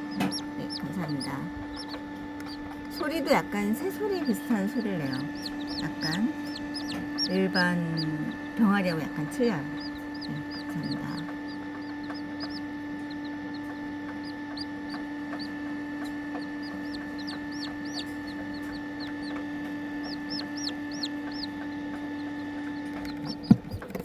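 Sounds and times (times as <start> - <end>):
chicks peeping: 0.0 - 24.0
steady hum: 0.0 - 24.0.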